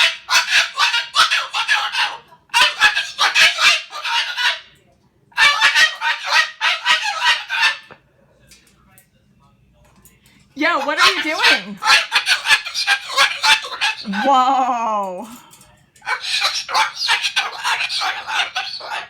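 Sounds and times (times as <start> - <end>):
cockatoo screaming: 0.0 - 4.7, 5.4 - 7.9, 10.8 - 14.4, 16.1 - 19.0.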